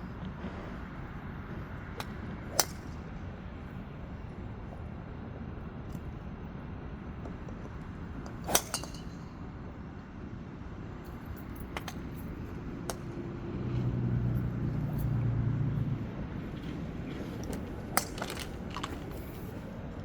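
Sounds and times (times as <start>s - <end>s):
golf club striking balls: 2.0s - 3.1s, 7.2s - 9.4s, 16.7s - 19.4s.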